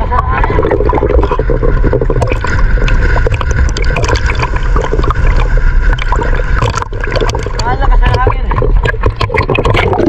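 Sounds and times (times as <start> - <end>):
deep low rumble: 0.0 - 10.0
sea water slapping and splashing: 0.0 - 10.0.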